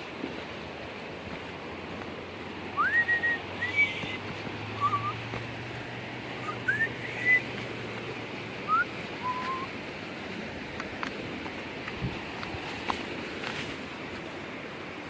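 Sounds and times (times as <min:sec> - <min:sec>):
rushing water: 0:00.0 - 0:15.0
rising bird whistles: 0:02.8 - 0:04.2, 0:04.8 - 0:05.2, 0:06.4 - 0:07.5, 0:08.7 - 0:09.7.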